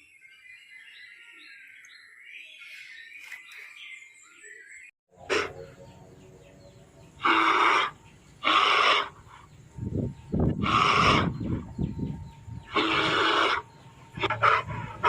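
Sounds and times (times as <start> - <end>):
animal harsh calls: 5.2 - 5.7, 7.2 - 9.5, 10.6 - 11.7, 12.6 - 15.0.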